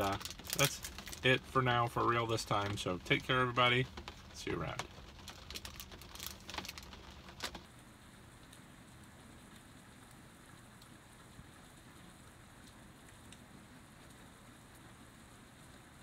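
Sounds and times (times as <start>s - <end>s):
foil wrapper crackling: 0.0s - 7.7s
rain on a wooden deck: 0.0s - 16.0s.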